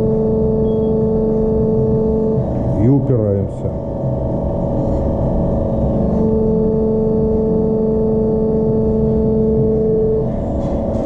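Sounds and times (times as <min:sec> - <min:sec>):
stronger press tone: 0:00.0 - 0:04.6.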